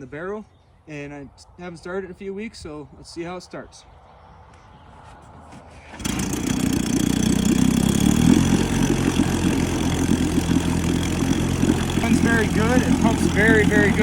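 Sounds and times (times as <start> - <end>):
outboard motor running: 5.9 - 14.0.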